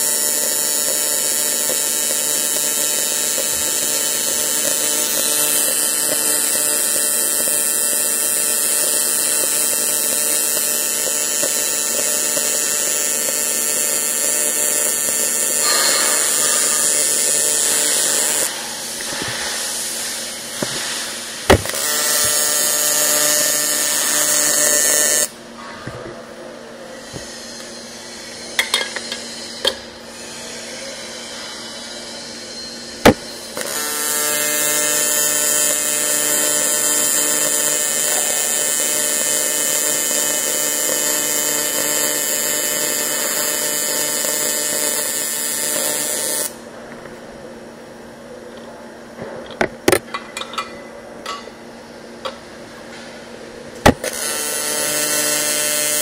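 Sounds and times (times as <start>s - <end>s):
welding arc buzzing: 0.0s - 25.4s, 32.0s - 46.7s, 53.8s - 56.0s.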